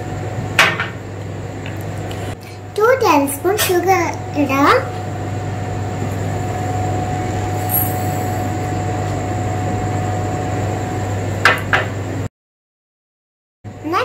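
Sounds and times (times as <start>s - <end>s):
low hum with hiss: 0.0s - 12.3s, 13.7s - 14.0s.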